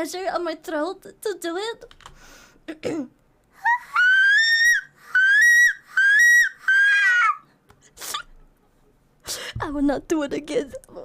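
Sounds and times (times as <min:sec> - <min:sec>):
woman imitating seagull cries: 0:03.6 - 0:07.4.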